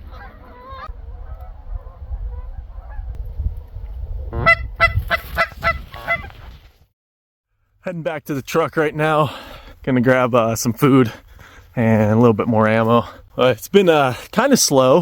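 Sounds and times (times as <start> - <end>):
geese honking: 0.0 - 3.1, 4.3 - 6.4
wind rumble on microphone: 0.0 - 6.8.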